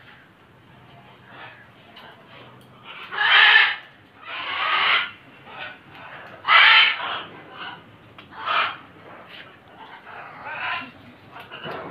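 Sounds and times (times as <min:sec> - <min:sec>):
birds squawking harshly: 0:02.8 - 0:08.9.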